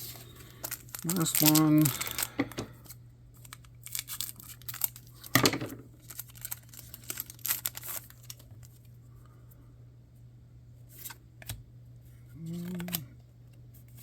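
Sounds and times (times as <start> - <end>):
wrapper tearing and crinkling: 0.0 - 5.4, 6.0 - 8.8.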